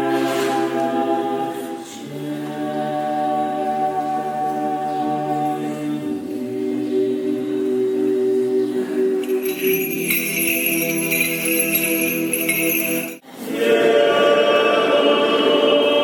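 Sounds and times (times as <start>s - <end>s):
choir singing a cappella: 0.0s - 9.2s, 13.3s - 16.0s.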